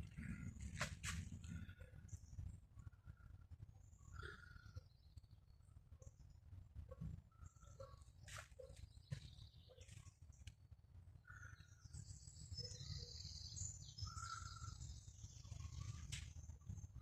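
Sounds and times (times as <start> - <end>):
birds chirping and trilling: 0.0 - 17.0.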